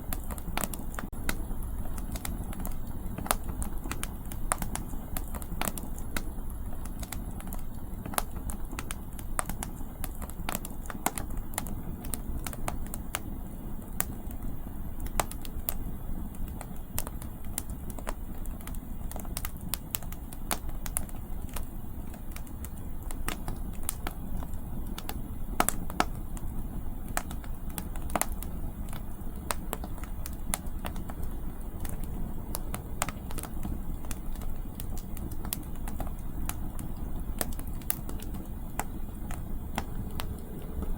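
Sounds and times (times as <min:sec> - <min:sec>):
campfire crackling: 0:00.0 - 0:40.9
low wind rumble: 0:31.3 - 0:40.9.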